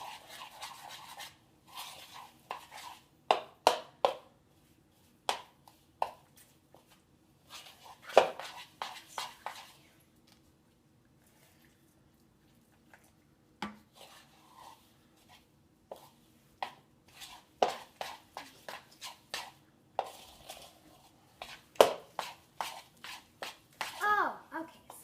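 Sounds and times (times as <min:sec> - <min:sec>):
utensil scraping mixing bowl: 0:17.1 - 0:24.0.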